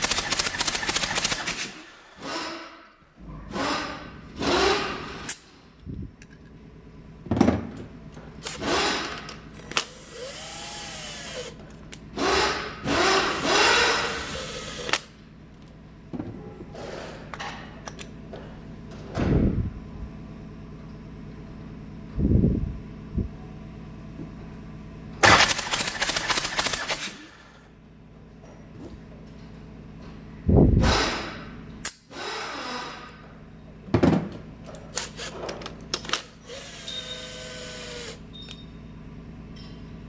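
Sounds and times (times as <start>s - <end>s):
power tool motor bursts: 0.0s - 2.8s, 8.5s - 11.6s, 12.2s - 15.2s, 25.2s - 27.5s, 32.0s - 33.2s, 36.2s - 38.2s.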